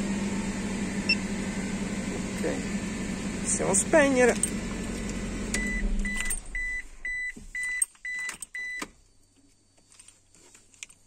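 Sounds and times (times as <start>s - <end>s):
car engine hum: 0.0s - 7.7s
high electronic beeps: 5.6s - 8.8s.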